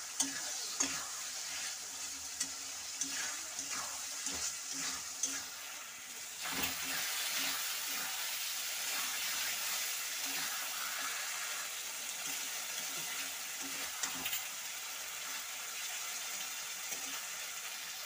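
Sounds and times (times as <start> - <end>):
food sizzling in hot oil: 0.0 - 18.0
metal spatula scraping pan: 0.1 - 11.6.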